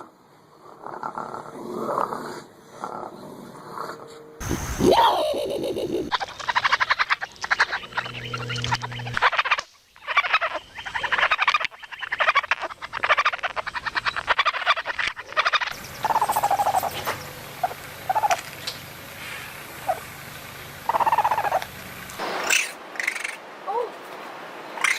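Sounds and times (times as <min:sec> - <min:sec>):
raccoons trilling and chittering: 0:04.7 - 0:23.4
raccoon whimpering calls: 0:04.8 - 0:18.4, 0:20.8 - 0:21.6.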